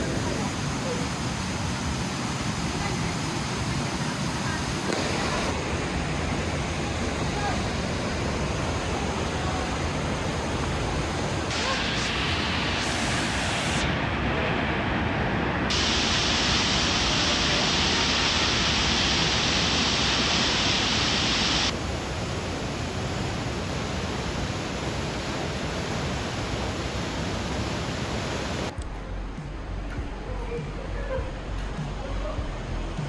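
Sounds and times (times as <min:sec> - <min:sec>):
waterfall rushing: 0:00.0 - 0:28.7.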